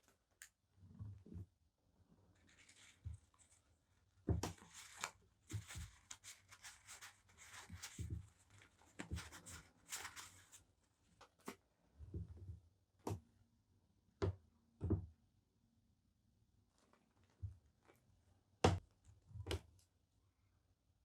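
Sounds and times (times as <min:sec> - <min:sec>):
soft paper rustles: 0:02.3 - 0:11.6, 0:16.7 - 0:18.1.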